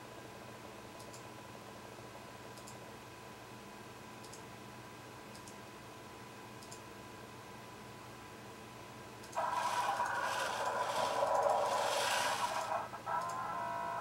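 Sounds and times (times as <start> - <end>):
steady background hum: 0.0 - 14.0
computer mouse clicks: 1.0 - 1.3, 2.5 - 2.8, 4.2 - 4.4, 5.3 - 5.6, 6.6 - 6.8, 9.2 - 13.4.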